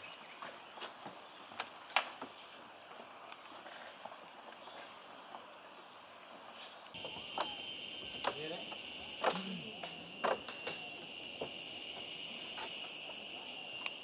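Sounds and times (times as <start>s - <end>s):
insect chorus drone: 0.0s - 14.0s
loud insect buzz: 6.9s - 14.0s.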